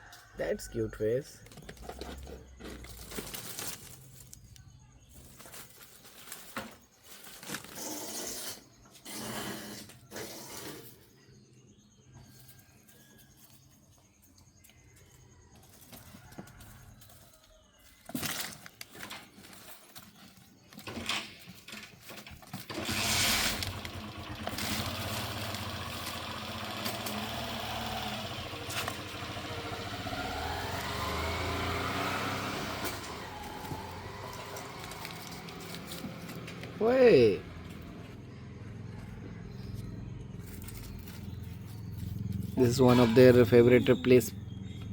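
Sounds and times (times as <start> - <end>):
engine humming: 22.7 - 44.9.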